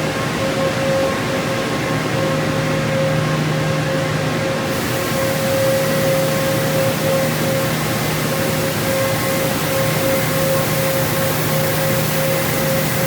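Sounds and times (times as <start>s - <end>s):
motor hum: 4.7s - 13.0s
water spray hiss: 4.7s - 13.0s.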